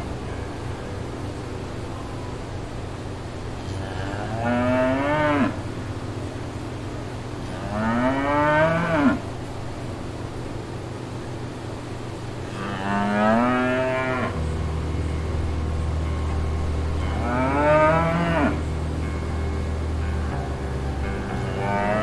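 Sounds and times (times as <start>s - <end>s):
steady low hum: 0.0s - 22.0s
cow mooing: 3.7s - 5.7s, 7.5s - 9.2s, 12.5s - 14.4s, 17.0s - 18.7s, 21.2s - 22.0s.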